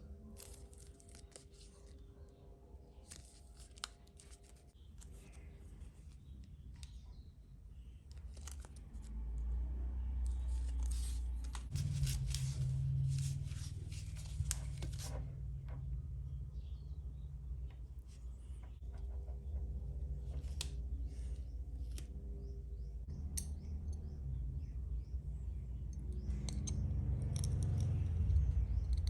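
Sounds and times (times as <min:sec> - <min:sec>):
low steady hum: 0:00.0 - 0:29.0
small parts clicking: 0:25.9 - 0:29.0.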